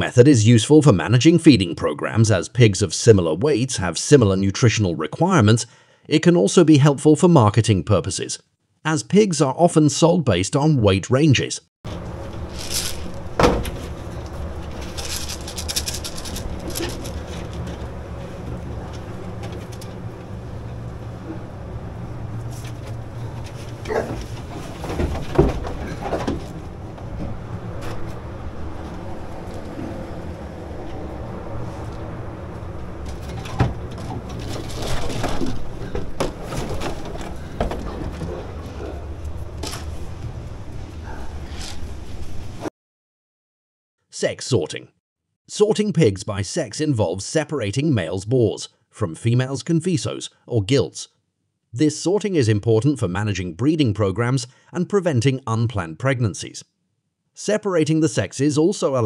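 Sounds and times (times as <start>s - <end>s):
low mechanical hum: 11.9s - 42.7s.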